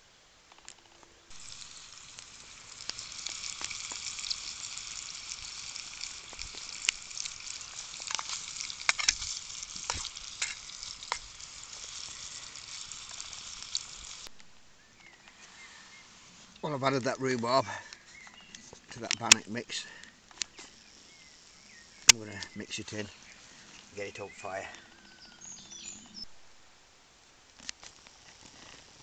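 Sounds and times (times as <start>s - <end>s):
oil popping and spitting: 1.3s - 14.3s
food sizzling in a pan: 1.3s - 14.4s, 19.7s - 26.1s.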